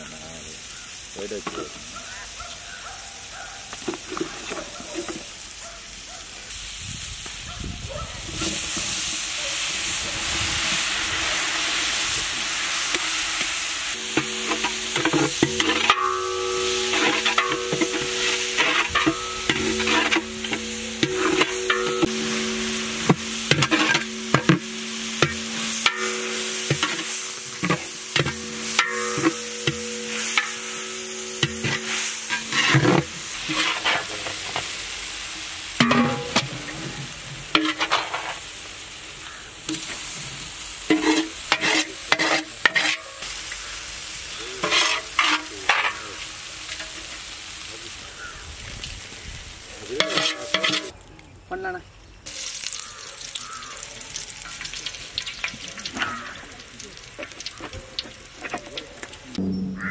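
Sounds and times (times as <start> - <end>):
vegetables sizzling in a pot: 0.0 - 51.5, 52.2 - 59.9
metal spatula scraping a pot: 12.8 - 34.7, 35.8 - 38.4, 40.9 - 43.3, 44.6 - 46.2, 50.0 - 50.9
low steady hum: 13.9 - 34.6.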